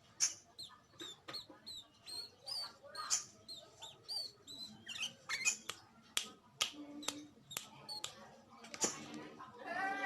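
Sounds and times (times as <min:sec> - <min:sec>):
sharp bird clicks: 0:00.2 - 0:08.2.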